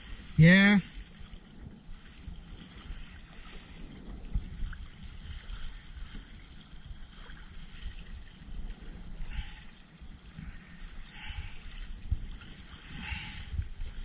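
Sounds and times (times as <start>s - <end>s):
water splashing against kayak hull: 0.0s - 14.0s
wind on microphone: 0.0s - 14.0s.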